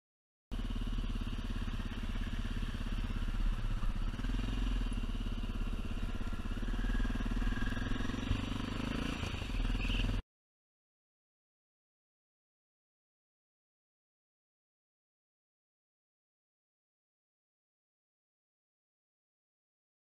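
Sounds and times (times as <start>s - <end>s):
motorcycle engine running: 0.5s - 10.2s.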